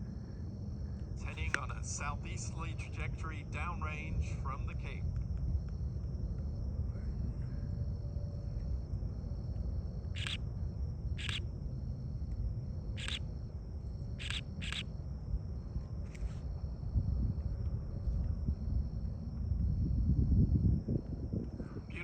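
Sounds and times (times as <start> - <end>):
night insects trilling: 0.0 - 22.0
distant rocket engine rumble: 0.1 - 22.0
short sharp chirps: 10.2 - 10.4, 11.2 - 11.4, 13.0 - 13.2, 14.2 - 14.8.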